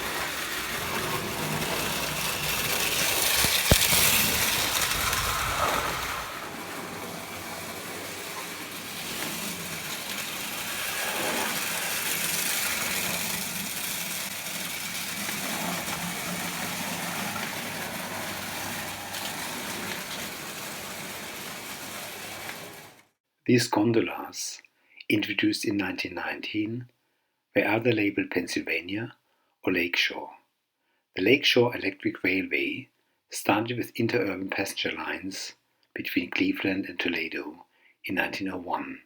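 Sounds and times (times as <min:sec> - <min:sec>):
toy train rolling hum: 0:00.0 - 0:23.1.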